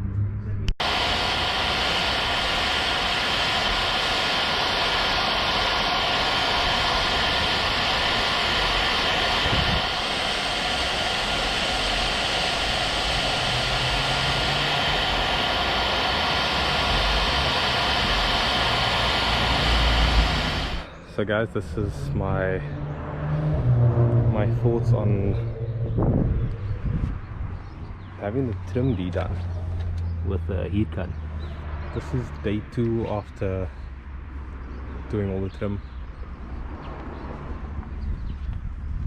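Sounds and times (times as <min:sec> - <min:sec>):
heat gun blowing: 0:00.8 - 0:21.0.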